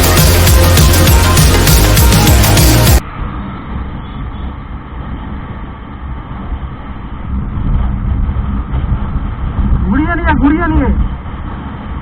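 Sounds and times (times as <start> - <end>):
music: 0.0 - 3.0
wind noise on microphone: 3.0 - 12.0.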